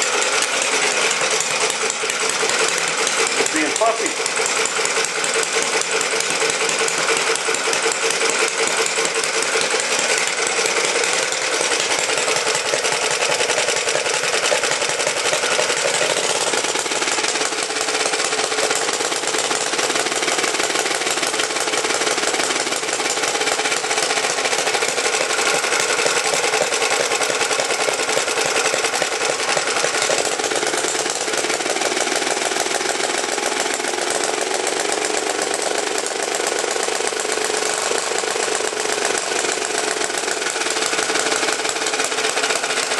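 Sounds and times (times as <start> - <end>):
small engine running fast: 0.0 - 42.9.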